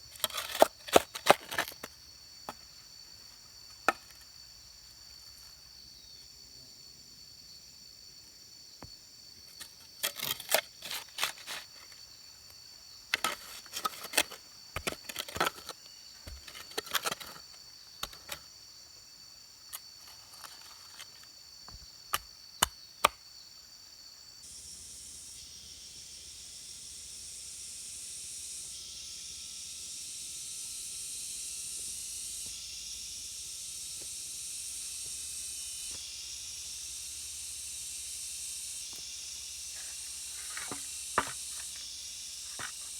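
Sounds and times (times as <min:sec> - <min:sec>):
insects chirring: 0:00.0 - 0:42.9
steady high hiss: 0:24.4 - 0:42.9.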